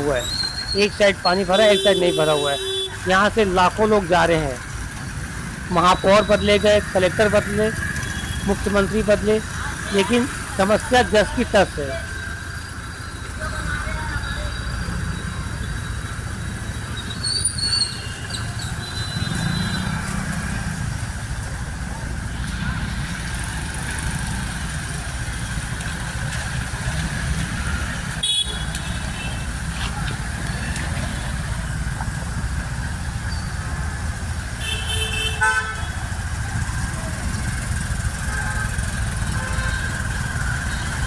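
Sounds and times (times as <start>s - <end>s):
road traffic: 0.0s - 41.0s
vehicle horns honking: 1.2s - 3.2s, 28.2s - 29.5s, 34.6s - 36.0s, 38.2s - 41.0s.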